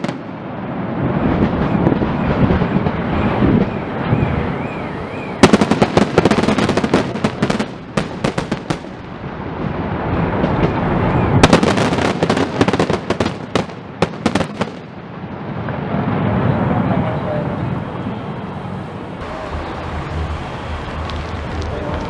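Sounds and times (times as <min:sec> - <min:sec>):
fireworks crackling pops: 0:00.0 - 0:00.4, 0:05.4 - 0:15.0, 0:19.2 - 0:22.0
low rumbling: 0:15.9 - 0:22.0.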